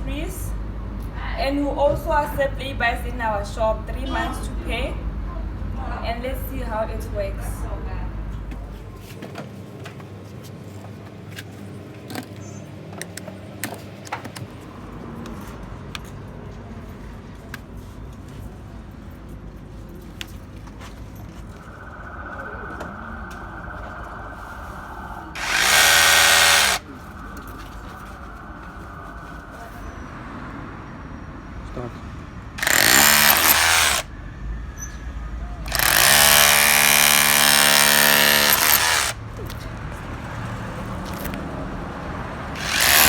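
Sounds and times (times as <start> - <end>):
faint steady high tone: 21.3 - 25.4
cordless hammer drill running: 25.4 - 26.8, 32.6 - 34.1, 35.7 - 39.2, 42.6 - 43.0.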